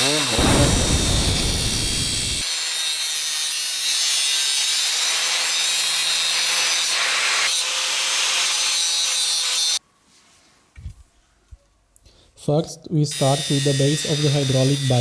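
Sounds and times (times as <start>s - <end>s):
angle grinder grinding steel: 0.0s - 2.7s, 13.2s - 15.0s.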